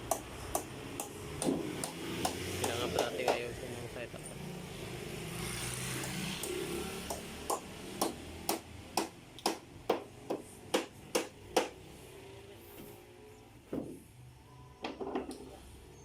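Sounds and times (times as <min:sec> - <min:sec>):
hammer strikes: 0:00.0 - 0:03.5, 0:06.0 - 0:11.8.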